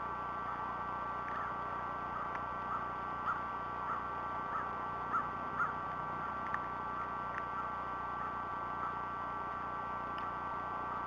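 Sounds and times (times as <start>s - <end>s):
steady whine: 0.0s - 11.0s
bird chirping: 2.6s - 7.8s.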